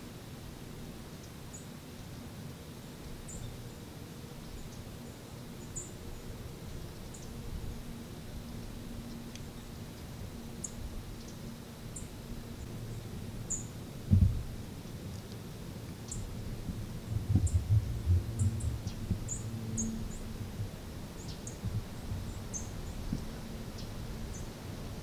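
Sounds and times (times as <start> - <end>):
small birds chipping: 2.9 - 7.8, 8.5 - 13.8, 14.4 - 24.6
low thumps and rumbling: 14.1 - 14.6, 16.2 - 21.0, 21.6 - 22.4.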